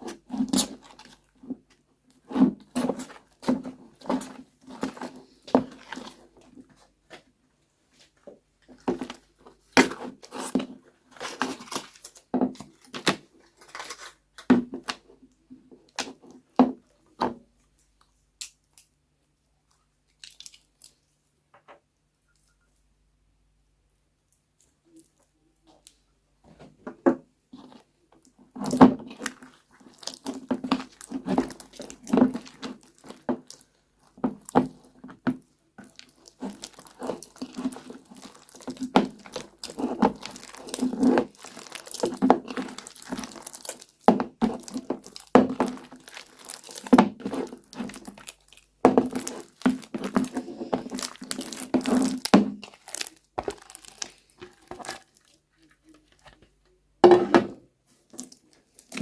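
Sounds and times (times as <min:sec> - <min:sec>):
slime crackling and crunching: 0:00.0 - 0:01.3, 0:02.2 - 0:06.3, 0:08.8 - 0:14.2, 0:20.1 - 0:21.2, 0:28.5 - 0:56.4, 0:58.0 - 0:59.0.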